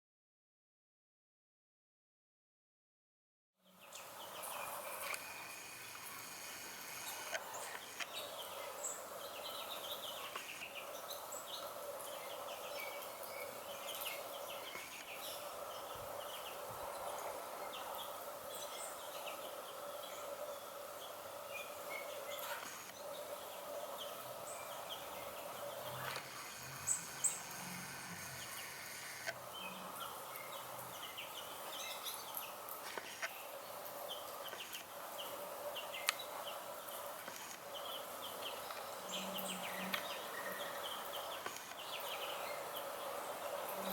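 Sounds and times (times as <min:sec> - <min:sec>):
small birds chirping: 0:03.6 - 0:43.9.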